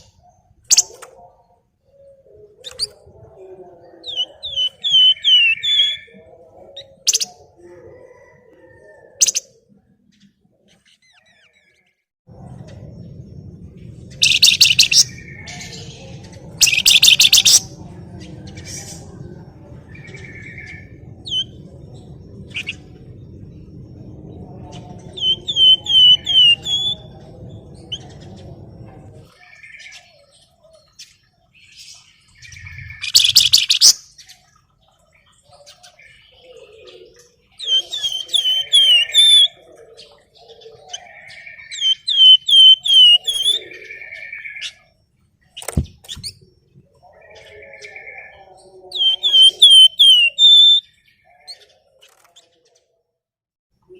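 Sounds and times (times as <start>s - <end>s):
songbird chattering and whistling: 4.0s - 7.5s, 14.1s - 17.9s, 25.0s - 27.2s, 32.6s - 34.2s, 37.5s - 39.7s, 40.9s - 44.9s, 47.6s - 51.6s
low hum: 12.3s - 16.6s, 17.7s - 26.3s.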